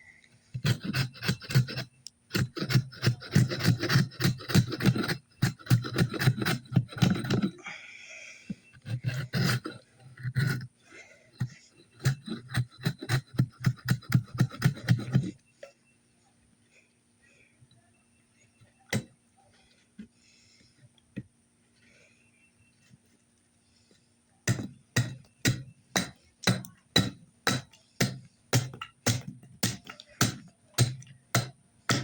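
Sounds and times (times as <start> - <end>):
hand tool scraping wood: 0.5 - 7.6, 8.6 - 10.7, 11.4 - 15.4, 24.5 - 32.0.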